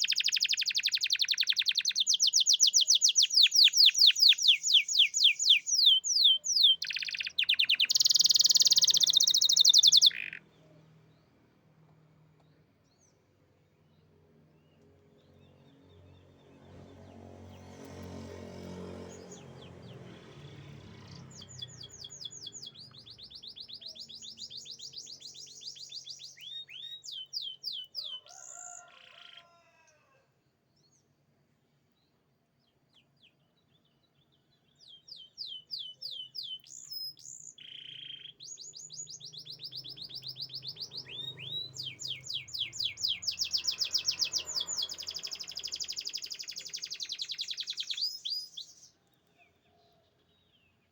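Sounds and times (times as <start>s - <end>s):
canary singing trills: 0.0s - 10.6s, 20.6s - 29.6s, 32.9s - 49.0s.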